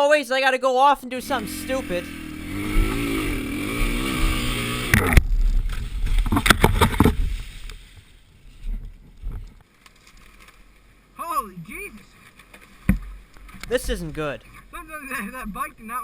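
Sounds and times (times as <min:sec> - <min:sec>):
dirt bike engine revving: 0:01.2 - 0:07.2, 0:13.7 - 0:14.4.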